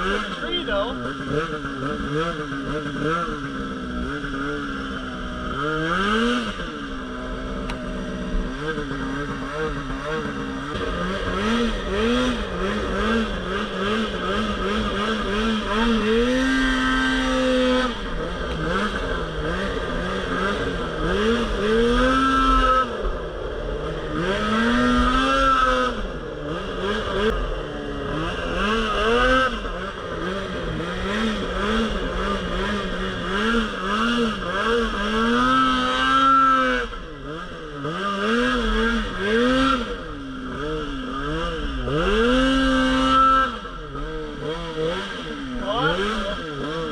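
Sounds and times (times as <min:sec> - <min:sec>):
snowmobile engine revving: 0:00.0 - 0:46.9.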